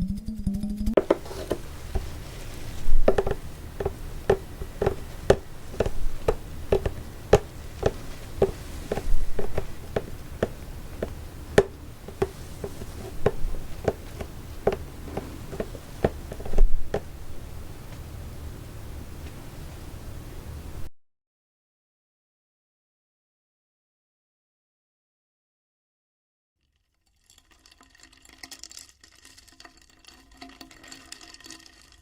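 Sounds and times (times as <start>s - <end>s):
sharp clicks and taps: 2.8s - 17.1s.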